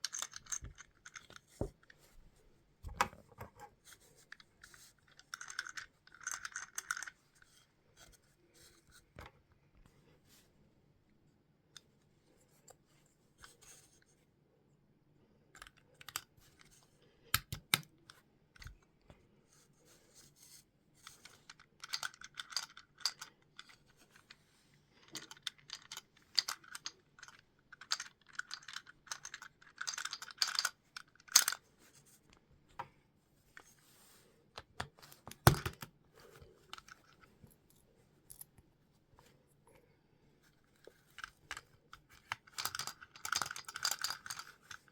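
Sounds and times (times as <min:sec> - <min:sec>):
plastic bricks clicking: 0:25.1 - 0:31.6, 0:41.4 - 0:44.9.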